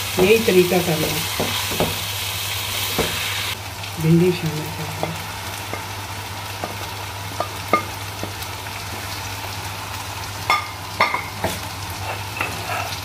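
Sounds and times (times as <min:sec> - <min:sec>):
vegetables sizzling in a wok: 0:00.0 - 0:13.0
spatula knocking against pan: 0:01.4 - 0:02.0.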